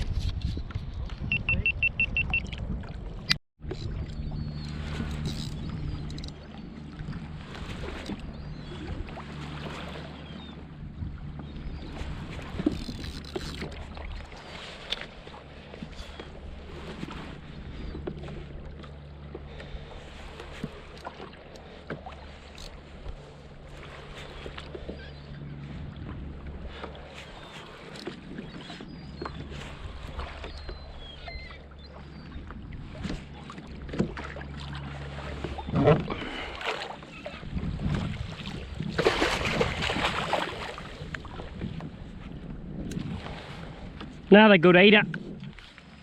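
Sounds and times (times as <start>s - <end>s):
wind on microphone: 0.0s - 14.5s, 35.3s - 46.0s
water moving against hull: 0.0s - 46.0s.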